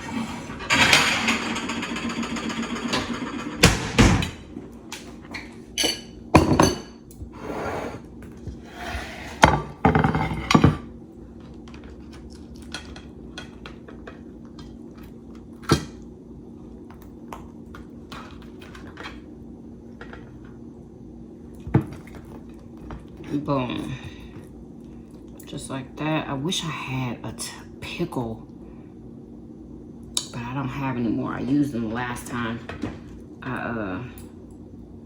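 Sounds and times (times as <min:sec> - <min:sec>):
faint steady hum: 0:03.0 - 0:35.0
dishes and utensils clattering: 0:05.8 - 0:07.0, 0:09.3 - 0:10.9.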